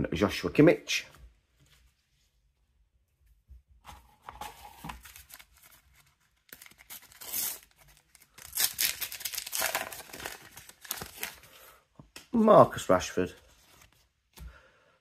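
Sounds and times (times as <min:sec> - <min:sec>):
paper packet tearing: 0:04.7 - 0:11.5.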